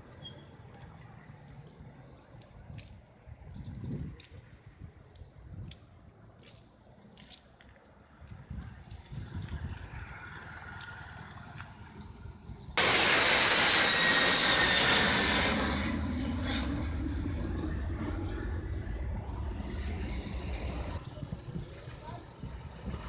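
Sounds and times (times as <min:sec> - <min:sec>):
loud rushing vehicle: 0:09.1 - 0:23.0.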